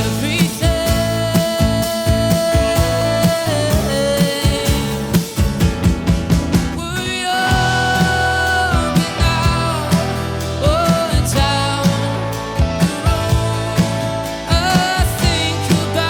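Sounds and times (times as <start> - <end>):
drums steady beat: 0.0 - 16.0
live indie rock band: 0.0 - 16.0
sliding lead melody notes: 7.5 - 16.0.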